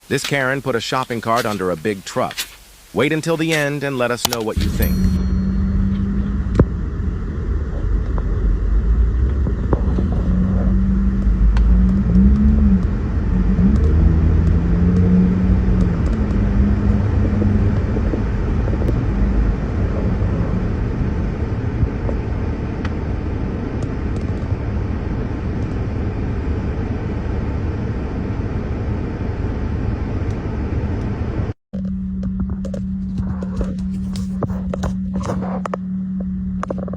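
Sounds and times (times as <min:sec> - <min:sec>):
vehicle engine rumbling: 0:04.4 - 0:36.9.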